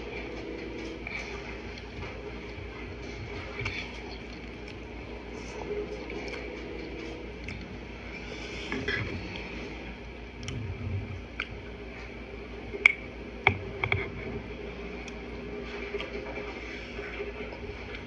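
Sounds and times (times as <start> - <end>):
person chewing noodles: 0.0 - 11.7.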